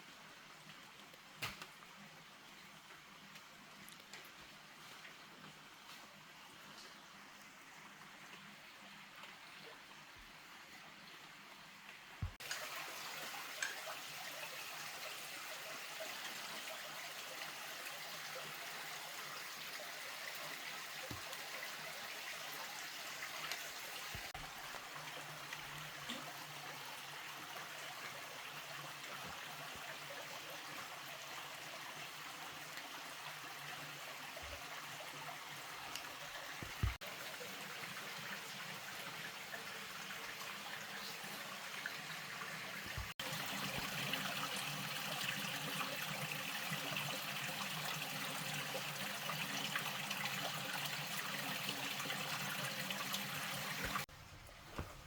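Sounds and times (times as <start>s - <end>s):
running water: 0.0s - 55.0s.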